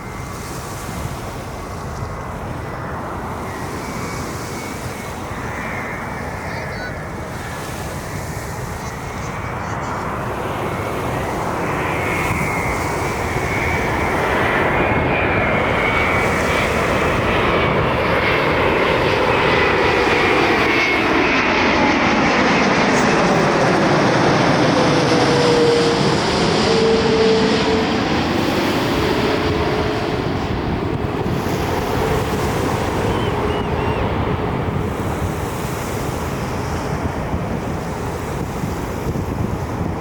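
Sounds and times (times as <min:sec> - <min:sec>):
jet engines roaring: 0:00.0 - 0:40.0
lower whine falling in pitch: 0:17.4 - 0:28.4.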